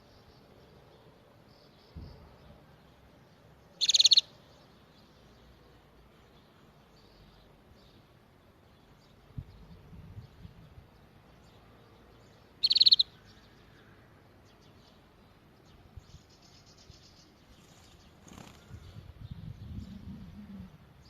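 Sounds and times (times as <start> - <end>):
faint bird chirps: 3.6 - 5.6, 11.4 - 15.1
canary trill: 3.8 - 4.3, 12.6 - 13.2.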